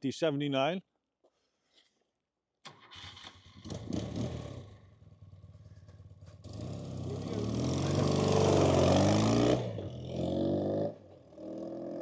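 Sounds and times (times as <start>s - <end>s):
motorcycle engine starting and idling: 2.6s - 9.8s.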